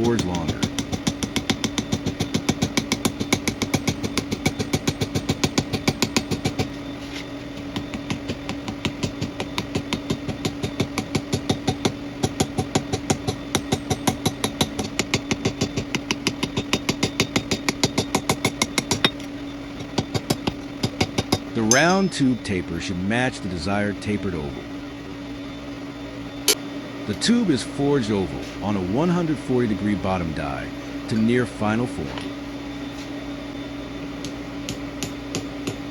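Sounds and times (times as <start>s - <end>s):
power hammer striking tube: 0.0s - 6.8s, 7.5s - 22.6s, 34.2s - 35.9s
motor hum: 0.0s - 35.9s.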